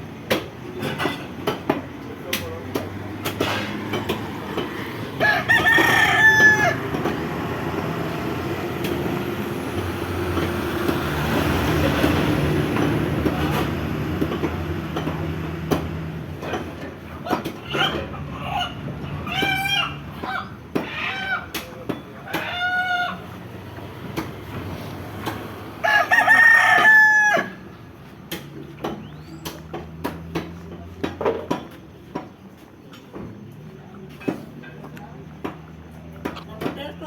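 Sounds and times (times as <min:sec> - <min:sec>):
rooster crowing: 0:05.1 - 0:07.4, 0:25.8 - 0:27.7.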